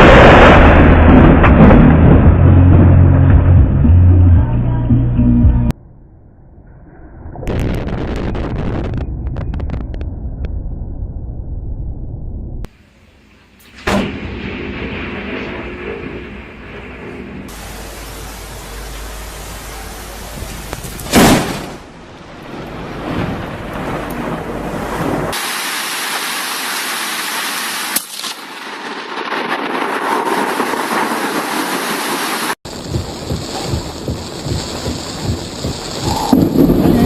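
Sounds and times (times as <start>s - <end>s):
thunder crack: 0.0s - 3.6s, 6.6s - 12.8s, 13.7s - 25.4s, 32.7s - 37.0s
steady rain hiss: 17.5s - 28.2s, 30.9s - 37.0s.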